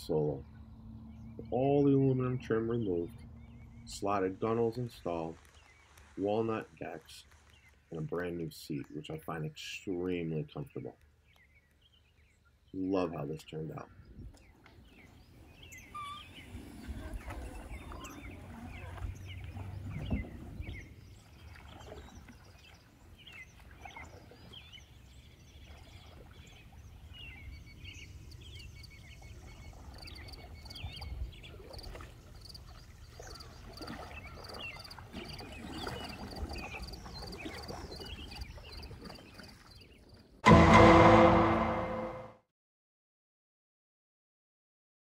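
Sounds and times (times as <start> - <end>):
canoe paddle stroking water: 14.4 - 41.9
high chirping calls: 15.5 - 20.8.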